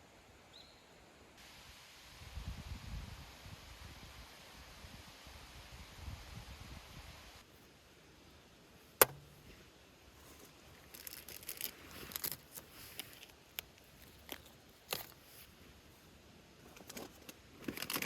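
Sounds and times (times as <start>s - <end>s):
light crinkling and ticking: 10.3s - 15.5s, 16.6s - 18.0s.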